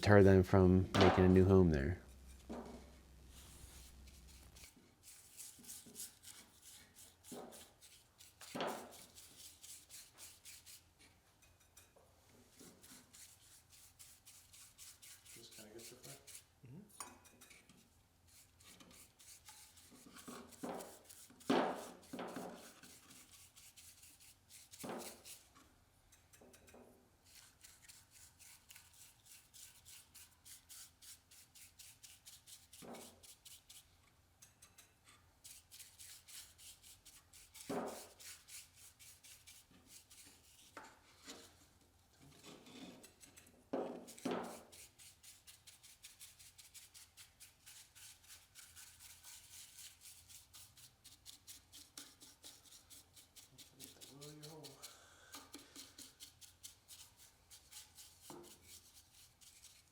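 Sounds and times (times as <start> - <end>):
cloth rubbing on wood: 2.1 - 6.6.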